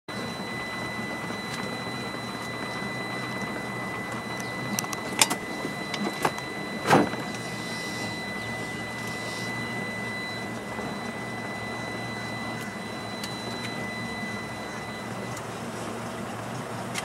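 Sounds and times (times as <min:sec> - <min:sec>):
machine hum with high whine: 0:00.1 - 0:17.0.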